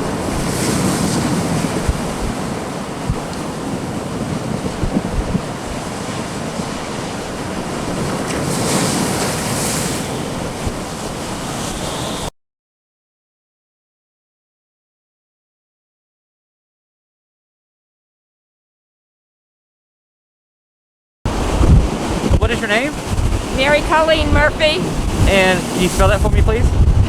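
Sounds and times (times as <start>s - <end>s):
storm surf breaking: 0.0s - 12.3s, 21.3s - 27.0s
strong wind: 0.0s - 12.3s, 21.3s - 27.0s
wind buffeting microphone: 0.0s - 12.3s, 21.3s - 27.0s.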